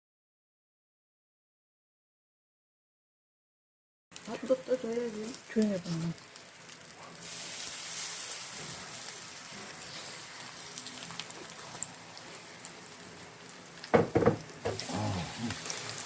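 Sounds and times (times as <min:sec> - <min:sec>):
pancakes sizzling in oil: 0:04.2 - 0:16.0.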